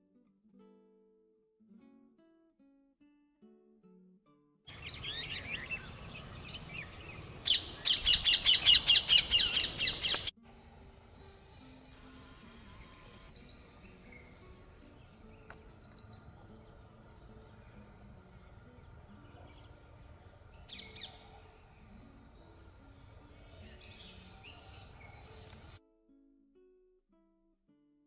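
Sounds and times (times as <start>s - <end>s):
faint outdoor background noise: 4.7s - 25.8s
wild birds chirping: 4.7s - 25.8s.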